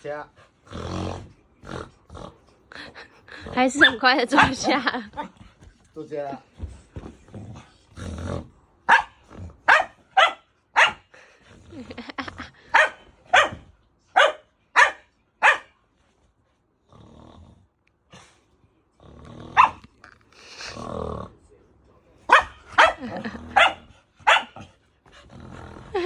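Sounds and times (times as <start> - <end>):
dog growling: 0.4 - 5.7, 6.6 - 9.9, 11.1 - 12.7, 16.8 - 21.5, 22.6 - 26.0
dog barking: 3.8 - 5.3, 8.9 - 11.1, 12.7 - 15.8, 19.6 - 19.9, 22.3 - 24.7.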